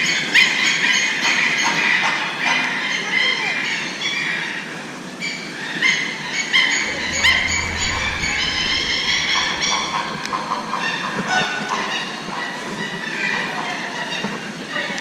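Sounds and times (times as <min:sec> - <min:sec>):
low rumble: 0:06.6 - 0:11.2.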